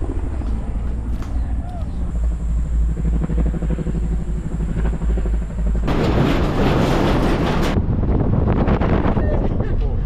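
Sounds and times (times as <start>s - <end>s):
vehicle engine rumbling: 0.0s - 10.0s
wind buffeting microphone: 3.2s - 10.0s.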